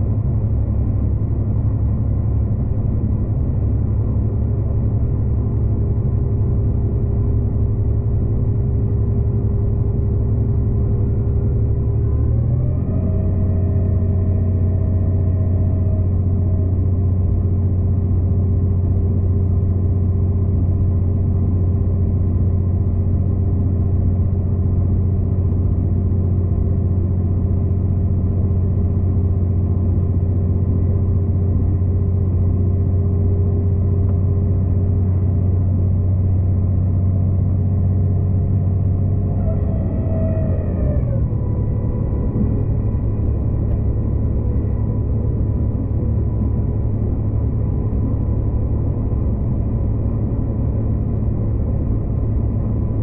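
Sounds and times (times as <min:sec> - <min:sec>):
train low drone: 0:00.0 - 0:53.0
train whining tones: 0:38.6 - 0:50.0.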